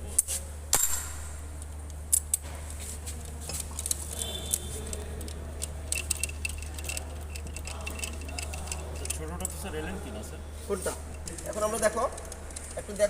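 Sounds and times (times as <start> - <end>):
steady low hum: 0.0 - 13.0
metal tools clinking: 3.4 - 9.8.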